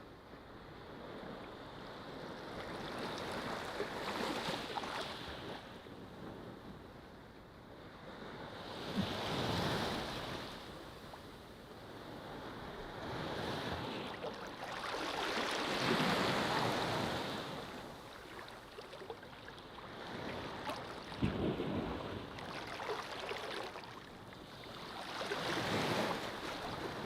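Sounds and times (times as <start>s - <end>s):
ocean waves breaking on beach: 8.0s - 27.0s.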